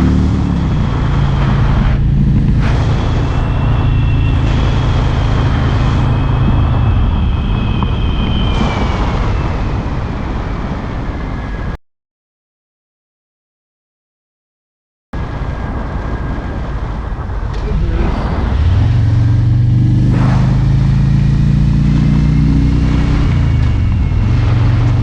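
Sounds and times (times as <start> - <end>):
motorcycle engine running: 0.0 - 8.5
wind and road noise: 0.0 - 11.8, 15.2 - 25.0
faint high whistle: 3.2 - 10.0.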